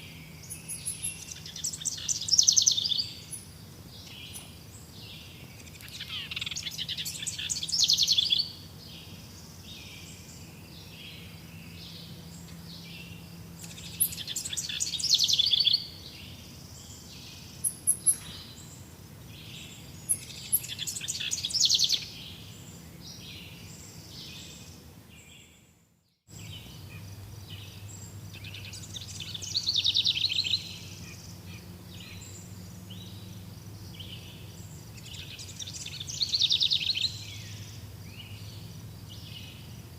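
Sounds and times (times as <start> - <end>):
bird trilled song phrase: 0.0 - 3.4, 5.6 - 8.6, 11.8 - 16.0, 19.6 - 22.5, 26.3 - 39.6
soft bird chirps: 0.0 - 39.9.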